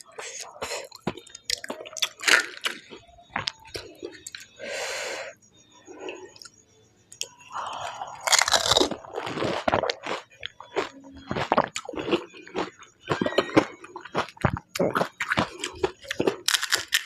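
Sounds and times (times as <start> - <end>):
crunchy chewing: 0.0 - 4.6, 5.8 - 17.0
crisp shell crunching: 8.2 - 10.2, 16.1 - 17.0.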